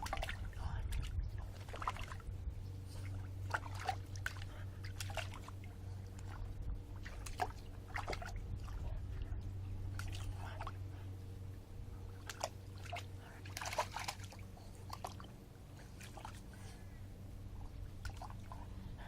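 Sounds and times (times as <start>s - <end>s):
water splashing in a bird bath: 0.0s - 2.3s, 2.9s - 9.3s, 9.9s - 10.8s, 12.1s - 16.6s, 17.6s - 18.7s
steady low hum: 0.0s - 19.0s.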